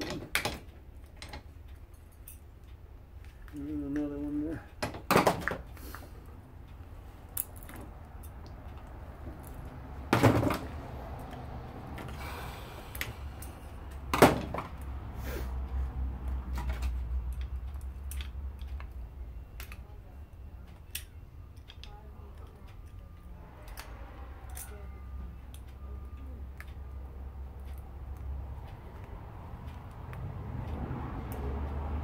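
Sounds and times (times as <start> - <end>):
tools and parts clicking: 0.0 - 2.8, 7.3 - 9.7, 16.5 - 19.9, 20.7 - 23.0, 23.6 - 24.8
low steady hum: 0.0 - 32.0.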